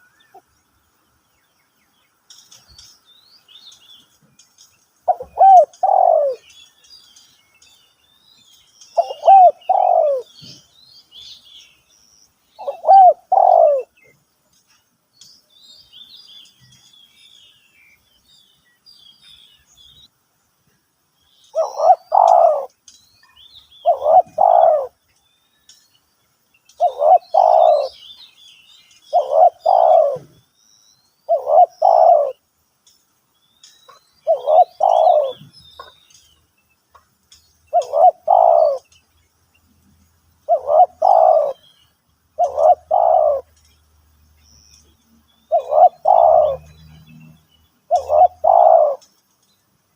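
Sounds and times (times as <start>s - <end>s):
small birds chirping: 0.0s - 49.9s
dove cooing: 5.1s - 6.5s, 9.0s - 10.7s, 12.6s - 14.1s, 21.6s - 22.7s, 23.8s - 25.0s, 26.8s - 28.0s, 29.1s - 30.4s, 31.3s - 32.4s, 34.2s - 36.0s, 37.7s - 38.9s, 40.5s - 41.6s, 42.4s - 43.5s, 45.5s - 46.8s, 47.9s - 49.0s.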